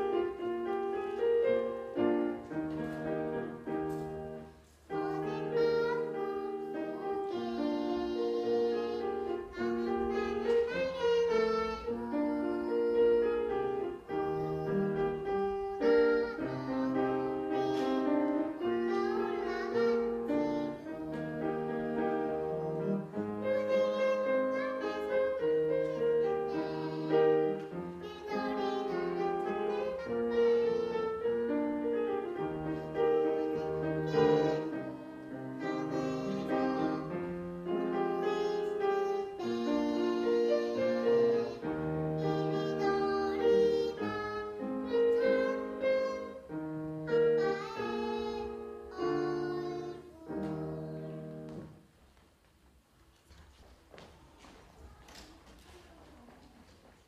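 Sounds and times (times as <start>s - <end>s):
young child singing: 0.0s - 51.9s, 54.0s - 57.0s
piano accompaniment: 0.0s - 57.0s.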